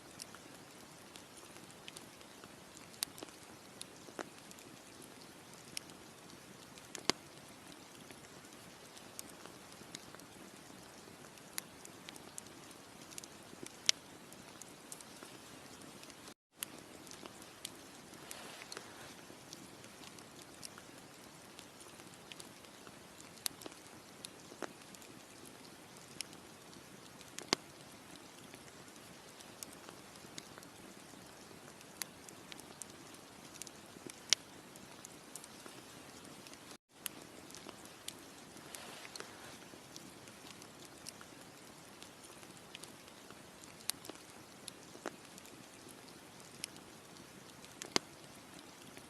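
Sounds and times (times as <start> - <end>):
campfire crackling and popping: 0.1 - 49.0.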